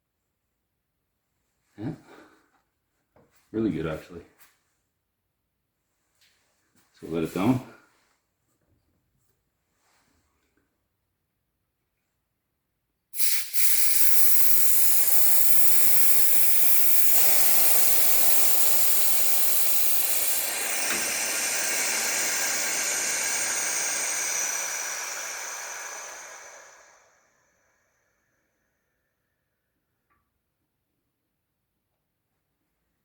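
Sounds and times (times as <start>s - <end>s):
air jack hissing: 13.2s - 27.8s.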